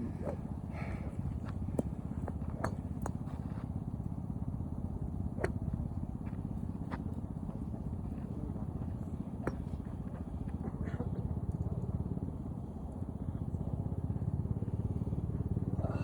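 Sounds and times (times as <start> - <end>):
golf clubs striking balls: 1.7 - 3.4, 5.0 - 6.4, 9.4 - 10.4.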